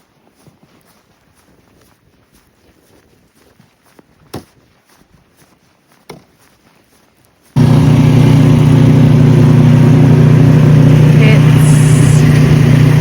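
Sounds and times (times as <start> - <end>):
loud engine-like drone: 7.6 - 13.0.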